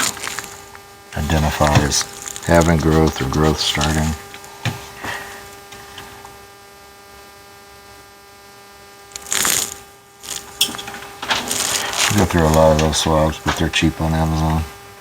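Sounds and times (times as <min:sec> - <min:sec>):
electrical hum with whine: 0:00.0 - 0:15.0
scratchy noise burst: 0:01.2 - 0:05.2, 0:09.2 - 0:14.7.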